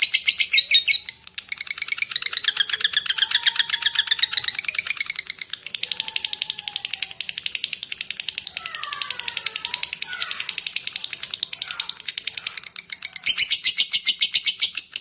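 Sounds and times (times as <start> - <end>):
lovebird rapid chirping: 0.0 - 15.0.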